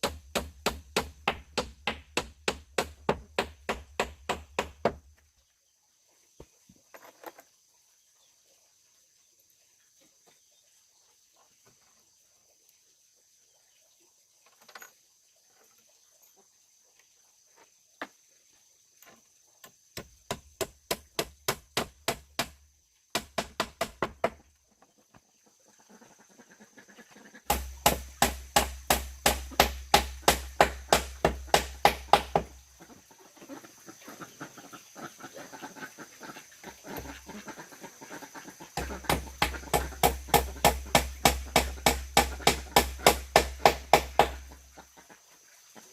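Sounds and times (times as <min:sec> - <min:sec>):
rapid hammering on wood: 0:00.0 - 0:05.1, 0:20.0 - 0:24.4, 0:27.5 - 0:32.6, 0:38.8 - 0:44.6.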